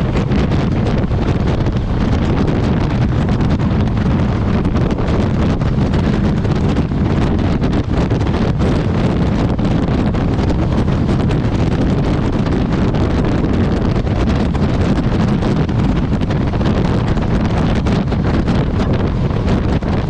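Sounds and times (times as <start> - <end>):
wind buffeting the microphone: 0.0 - 20.0.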